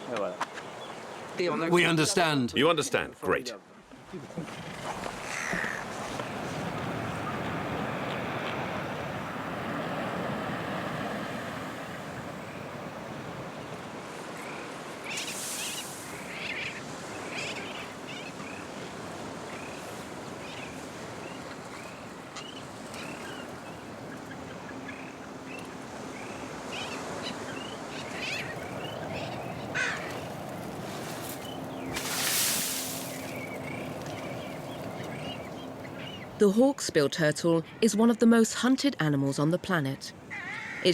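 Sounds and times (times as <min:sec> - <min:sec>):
wind: 0:00.0 - 0:40.9
surf: 0:03.9 - 0:36.5.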